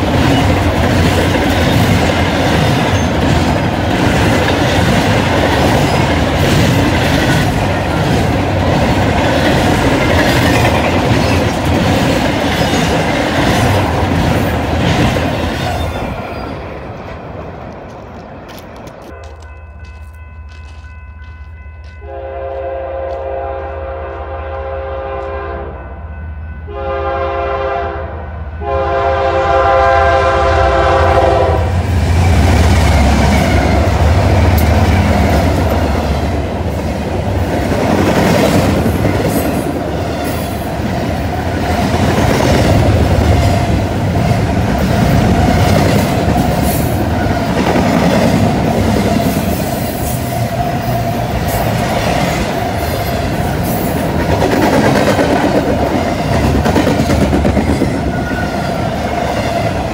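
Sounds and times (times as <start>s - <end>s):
diesel locomotive engine rumble: 0.0s - 59.9s
locomotive air horn chord: 22.0s - 26.0s, 26.6s - 31.8s.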